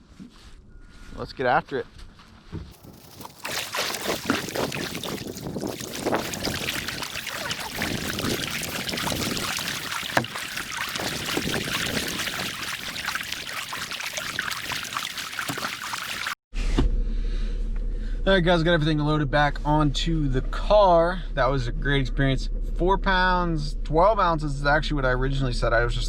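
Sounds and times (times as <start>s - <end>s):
paddle splashing water: 2.7s - 16.4s.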